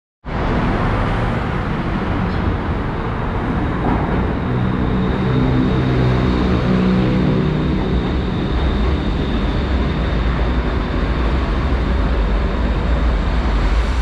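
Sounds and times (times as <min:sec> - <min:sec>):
electric train rumbling: 0:00.2 - 0:14.0
low hum: 0:00.3 - 0:14.0.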